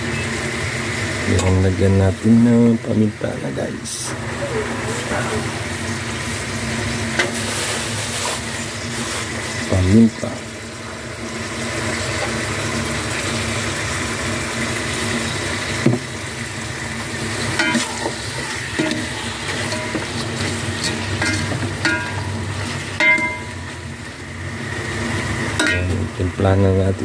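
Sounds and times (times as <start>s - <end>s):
chicken sizzling in a pot: 0.0s - 27.0s
ladle clinking and scraping pot: 17.4s - 23.8s, 25.6s - 26.0s.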